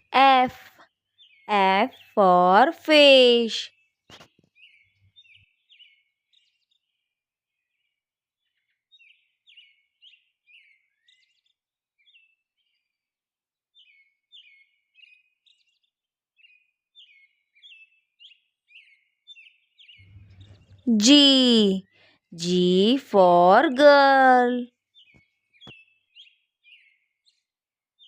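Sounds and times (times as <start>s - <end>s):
faint bird chirping: 13.8s - 27.5s.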